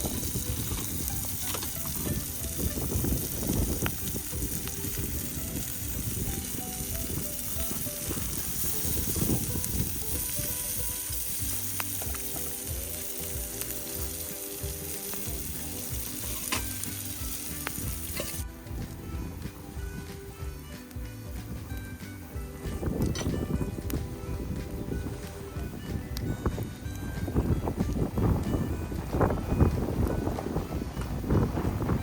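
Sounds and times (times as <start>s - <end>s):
wind rumbling on microphone: 0.0s - 11.0s, 18.6s - 20.3s, 22.6s - 32.0s
wood fire crackling: 0.0s - 32.0s.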